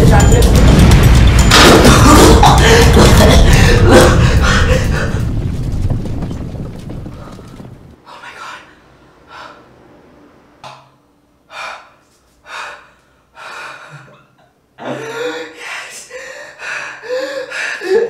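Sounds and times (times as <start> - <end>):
person gasping and breathing hard: 1.8 - 5.2, 11.5 - 18.0.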